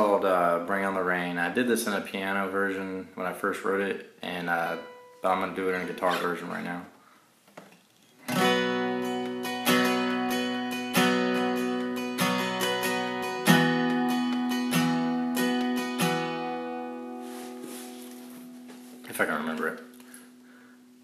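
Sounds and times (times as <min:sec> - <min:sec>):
guitar strummed slowly: 0:04.6 - 0:06.3, 0:08.3 - 0:19.0.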